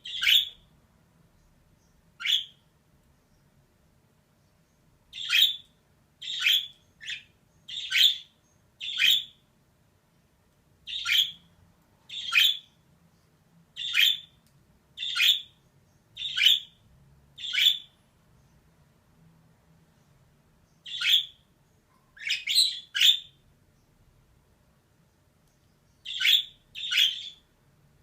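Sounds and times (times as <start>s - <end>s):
budgerigar chirping calls: 0.0s - 0.6s, 2.2s - 2.6s, 5.1s - 9.4s, 10.8s - 11.5s, 12.1s - 12.8s, 13.8s - 14.4s, 15.0s - 15.6s, 16.2s - 16.8s, 17.4s - 18.0s, 20.8s - 21.4s, 22.2s - 23.4s, 26.0s - 27.5s.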